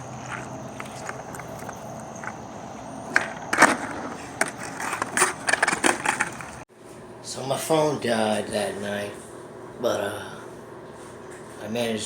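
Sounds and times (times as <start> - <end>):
skateboard clacking on ground: 0.0 - 6.6
skateboard rolling: 0.0 - 6.6.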